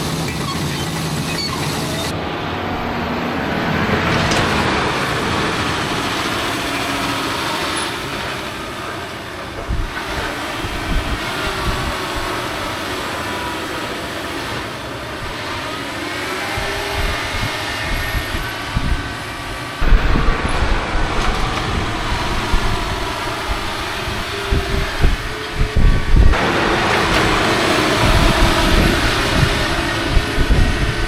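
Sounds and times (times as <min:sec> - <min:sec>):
heavy diesel machinery rumbling: 0:00.0 - 0:31.0.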